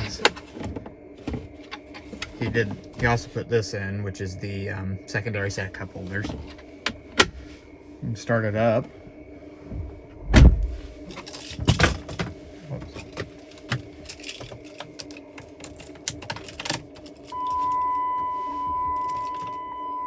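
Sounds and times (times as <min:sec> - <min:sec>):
keys jingling and clicking: 0:13.8 - 0:17.7, 0:19.0 - 0:19.6
electronic warning tone: 0:17.3 - 0:20.0.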